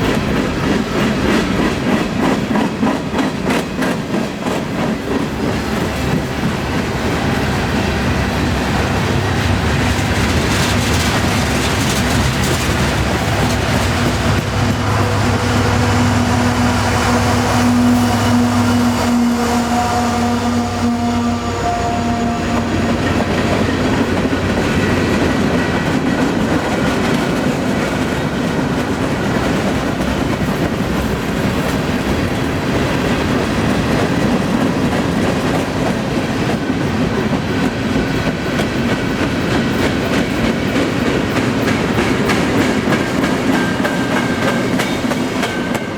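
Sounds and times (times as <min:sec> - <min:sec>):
freight train rolling past: 0:00.0 - 0:45.9
wheels clattering over rail joints: 0:09.1 - 0:15.2.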